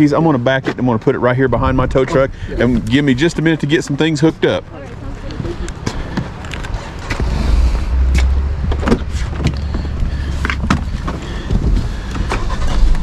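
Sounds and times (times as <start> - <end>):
car rolling on flat tire: 0.5 - 13.0
clicks and knocks: 8.1 - 12.4.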